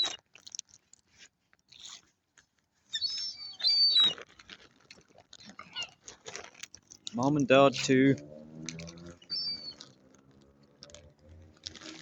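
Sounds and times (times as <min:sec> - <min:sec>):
faint clicks and rustles: 0:00.0 - 0:12.0
birds squawking: 0:09.0 - 0:10.0.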